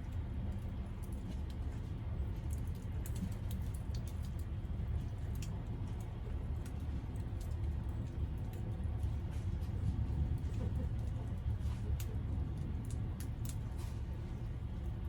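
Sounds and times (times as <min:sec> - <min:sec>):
low steady rumble: 0:00.0 - 0:15.0
campfire crackling and popping: 0:02.5 - 0:04.5, 0:11.9 - 0:13.8.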